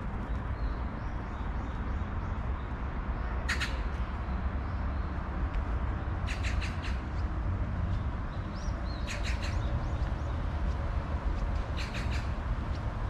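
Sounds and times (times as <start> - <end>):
small birds calling: 6.2 - 7.3, 8.0 - 10.8, 11.6 - 12.9.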